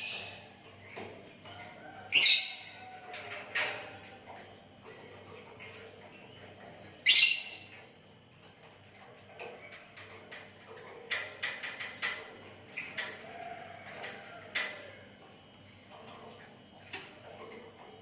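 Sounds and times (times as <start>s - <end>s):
bird calling: 7.0s - 7.6s.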